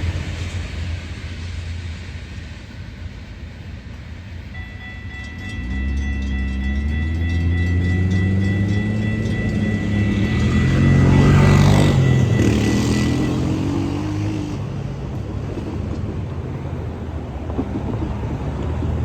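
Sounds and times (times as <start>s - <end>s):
passing train rumble: 0.0s - 19.0s
steady high tone: 4.5s - 14.8s
vehicle engine pulling away: 5.6s - 14.7s.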